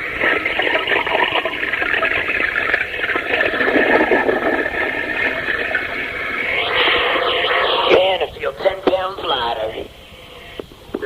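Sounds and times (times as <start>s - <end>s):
dense continuous noise: 0.0s - 11.0s
thin narrow-band radio sound: 0.0s - 11.0s.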